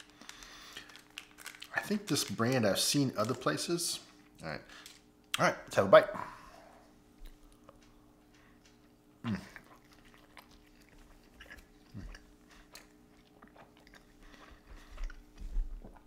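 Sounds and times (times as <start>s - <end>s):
person chewing: 7.2s - 16.0s.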